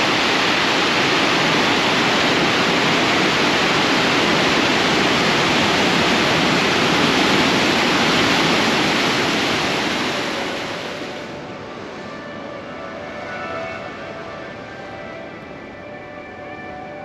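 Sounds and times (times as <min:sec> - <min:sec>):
waves breaking: 0:00.0 - 0:11.4.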